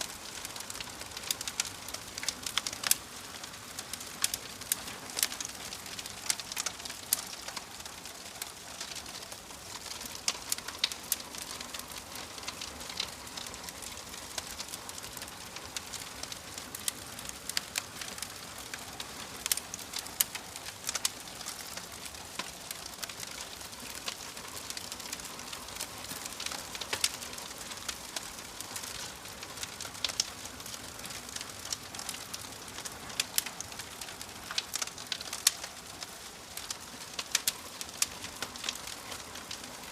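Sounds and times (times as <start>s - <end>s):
wood fire crackling and hissing: 0.0s - 39.9s.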